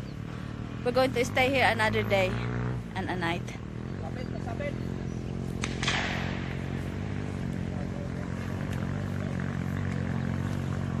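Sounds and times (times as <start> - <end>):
vehicle engine running: 0.0 - 11.0
sharp knock: 5.6 - 6.5.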